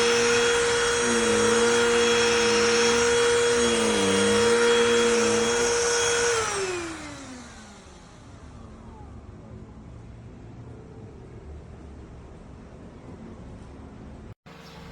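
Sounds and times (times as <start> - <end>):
handheld vacuum whining: 0.0 - 8.4
vacuum winding down: 0.0 - 8.7.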